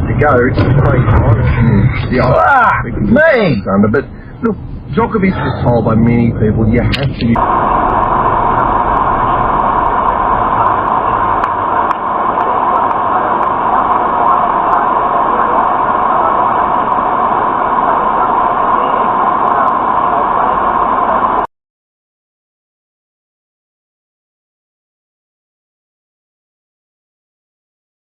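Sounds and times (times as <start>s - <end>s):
vehicle road noise: 0.0s - 21.5s.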